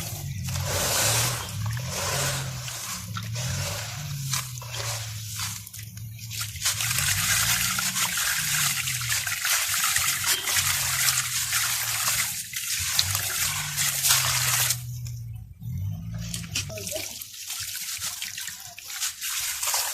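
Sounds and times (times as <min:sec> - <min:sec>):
low hum: 0:00.0 - 0:09.3
water trickling: 0:00.0 - 0:19.9
crumbles fizzing in water: 0:00.2 - 0:15.0.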